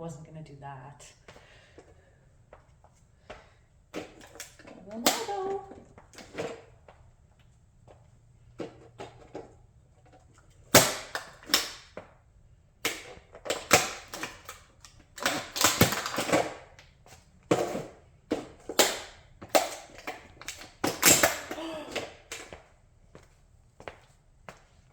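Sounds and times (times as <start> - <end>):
plastic cracking and snapping: 10.7 - 11.9, 12.8 - 16.9, 18.7 - 22.5.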